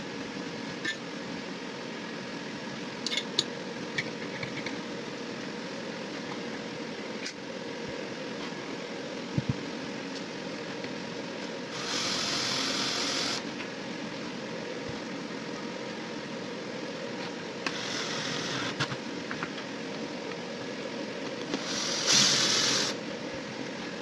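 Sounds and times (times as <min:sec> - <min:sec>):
mechanical hum: 0:00.0 - 0:24.0
hissing bursts: 0:21.6 - 0:23.0.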